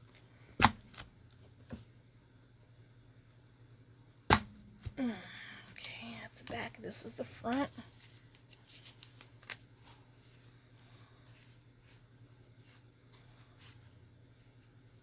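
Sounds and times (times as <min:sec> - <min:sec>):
low steady hum: 0:00.0 - 0:15.0
paper pages rustling: 0:07.4 - 0:14.0.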